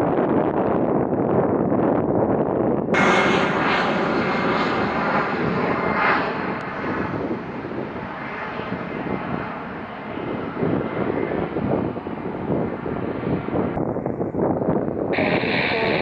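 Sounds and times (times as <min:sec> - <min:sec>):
jet engines rushing: 0:03.0 - 0:13.8, 0:15.1 - 0:16.0.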